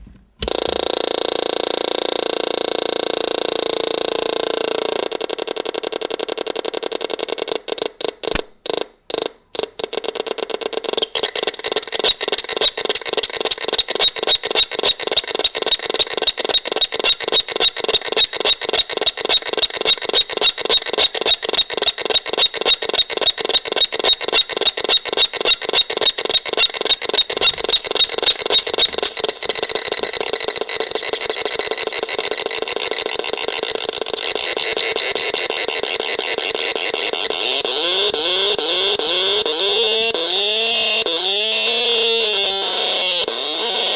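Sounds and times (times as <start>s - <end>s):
alarm-like electronic pulsing: 25.3s - 43.9s
shrill electronic drone: 37.1s - 43.9s.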